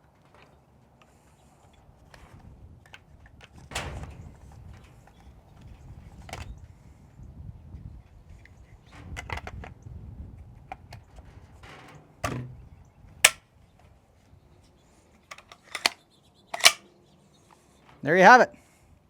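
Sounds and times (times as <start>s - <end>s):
rifle handling noise: 15.3s - 16.0s, 16.6s - 16.8s
rifle parts clicking together: 15.3s - 16.0s, 16.6s - 16.8s.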